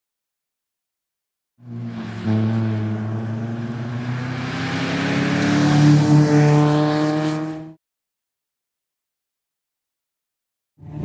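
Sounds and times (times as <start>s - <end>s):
rally car engine accelerating: 1.6s - 7.8s.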